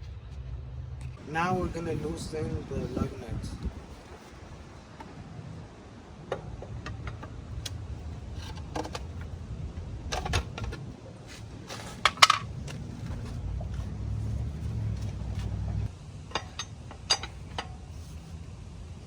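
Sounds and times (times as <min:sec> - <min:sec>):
low steady rumble: 0:00.0 - 0:19.0
lug wrench clicks and knocks: 0:10.1 - 0:10.9, 0:11.8 - 0:13.8, 0:16.2 - 0:17.9.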